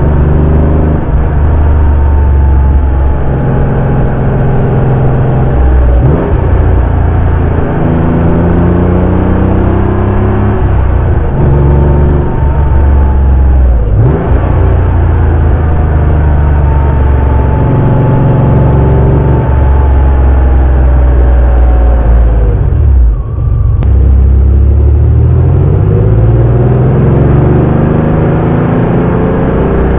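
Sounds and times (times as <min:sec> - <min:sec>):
car engine with gear changes: 0:00.0 - 0:29.9.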